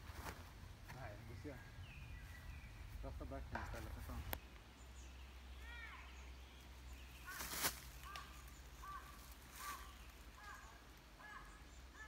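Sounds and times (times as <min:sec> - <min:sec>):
undergrowth rustling: 0:00.0 - 0:11.9.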